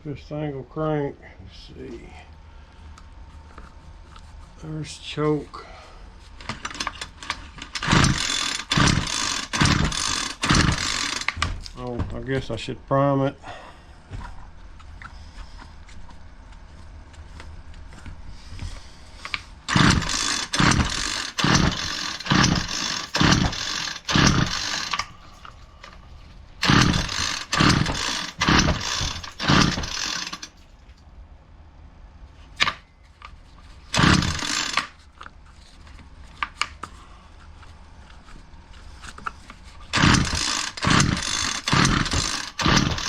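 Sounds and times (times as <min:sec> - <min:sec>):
string trimmer recoil starter pulls: 0:06.4 - 0:11.8, 0:19.3 - 0:26.0, 0:26.6 - 0:30.6, 0:33.9 - 0:35.0, 0:39.9 - 0:43.0.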